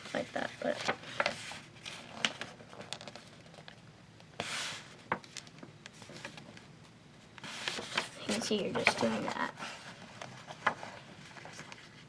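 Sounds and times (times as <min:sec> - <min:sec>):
paper being folded and creased: 0:00.0 - 0:03.8, 0:07.4 - 0:12.0
paper sliding rustle: 0:00.1 - 0:03.6, 0:04.4 - 0:05.1, 0:07.4 - 0:12.0.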